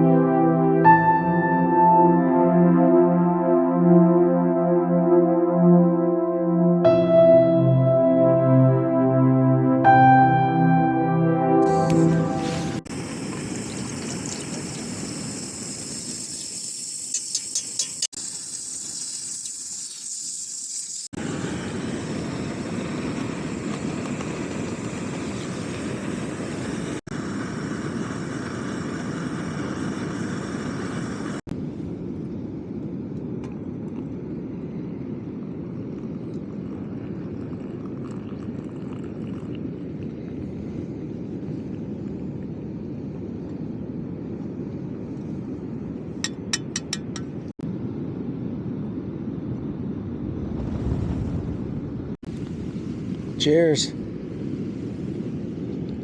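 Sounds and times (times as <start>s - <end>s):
strong wind: 21.2s - 56.0s.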